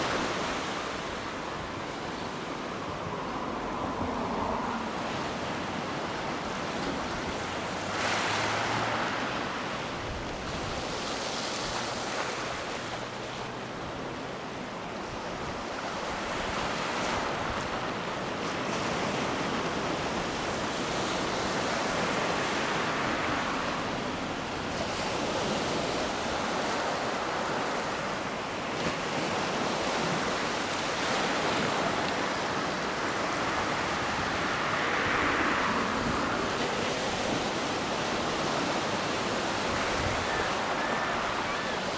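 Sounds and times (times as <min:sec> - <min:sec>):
surf washing onto beach: 0:00.0 - 0:41.9
wind on microphone: 0:15.1 - 0:41.9.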